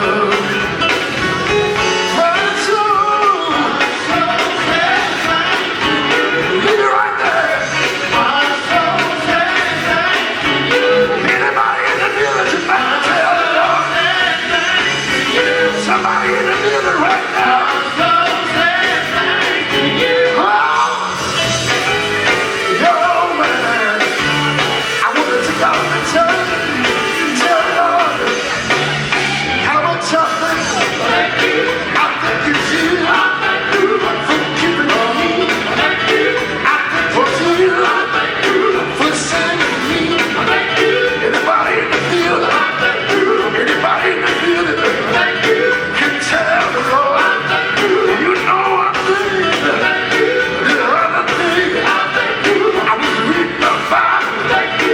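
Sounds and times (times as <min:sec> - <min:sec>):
band with steady beat: 0:00.0 - 0:54.9
gospel vocal group singing: 0:00.0 - 0:54.9
steady drumbeat: 0:21.1 - 0:29.6.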